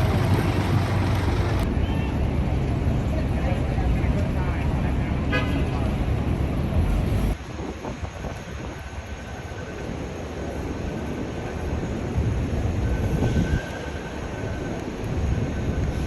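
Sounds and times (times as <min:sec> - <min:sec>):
heavy vehicle rumbling past: 0:00.0 - 0:01.7.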